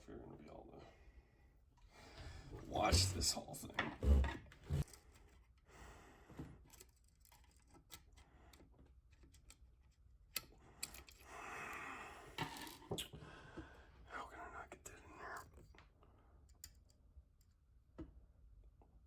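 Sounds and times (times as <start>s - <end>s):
person exhaling: 11.3s - 12.4s.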